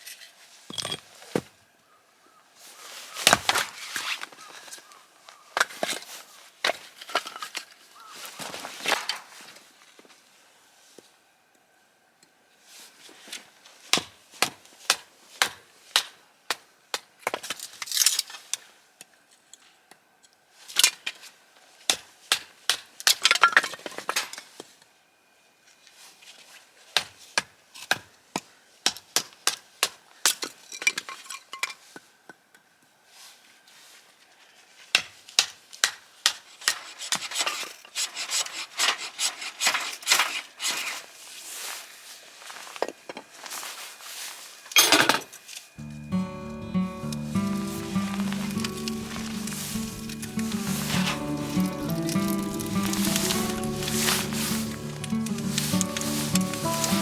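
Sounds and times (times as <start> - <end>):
wood scraping: 47.0 - 57.0.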